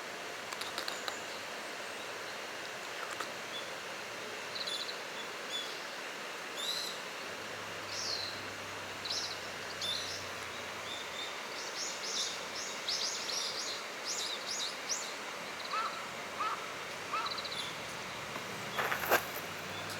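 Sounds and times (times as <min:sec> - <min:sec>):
steady outdoor hiss: 0:00.0 - 0:19.9
small birds chirping: 0:07.9 - 0:19.9.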